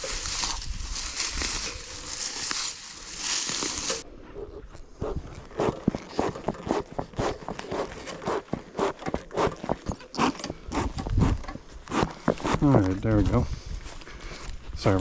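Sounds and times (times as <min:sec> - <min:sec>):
rustling: 0:00.0 - 0:04.0.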